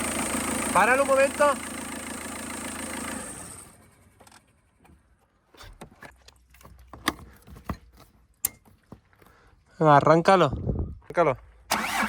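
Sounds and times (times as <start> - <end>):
engine winding down: 0.0 - 4.5, 11.7 - 12.0
car engine idling: 0.0 - 4.8.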